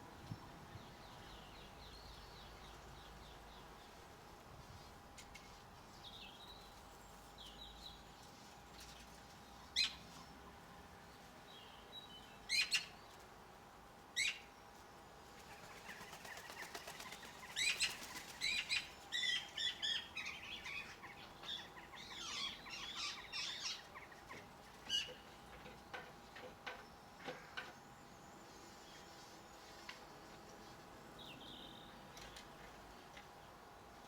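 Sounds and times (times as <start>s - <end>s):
birds chirping and twittering: 15.3s - 33.5s
bird wings fluttering: 15.4s - 18.7s.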